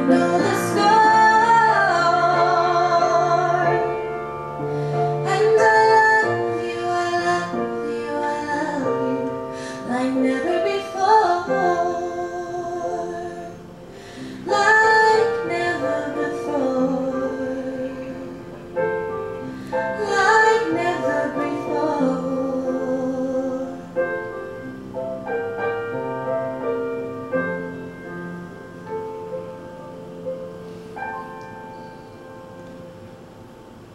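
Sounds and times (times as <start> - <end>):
woman singing: 0.0 - 4.2, 5.1 - 13.8, 14.4 - 18.6, 19.8 - 24.0
piano chords: 0.0 - 33.9.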